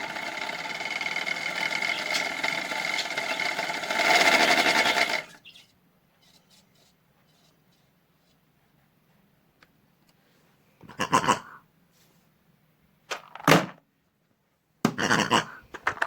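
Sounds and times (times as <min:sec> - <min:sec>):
small electric motor whining: 0:00.0 - 0:05.6.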